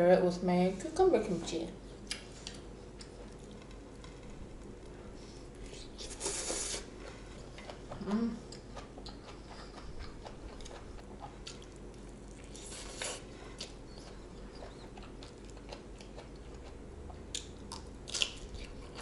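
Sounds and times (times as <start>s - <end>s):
person chewing wetly: 5.6s - 19.0s
low voice hum: 7.9s - 8.6s.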